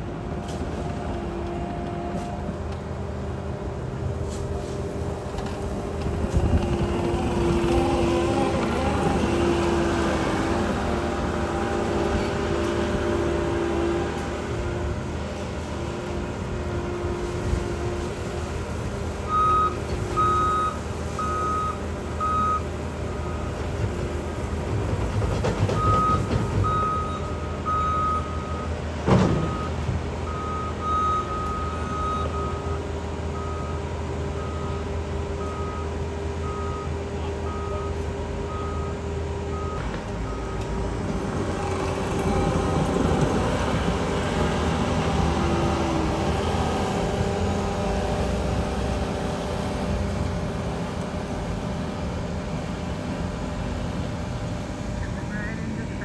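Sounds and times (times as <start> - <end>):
excavator diesel engine droning: 0.0 - 56.0
reversing alarm beeping: 19.3 - 23.6, 25.8 - 40.8.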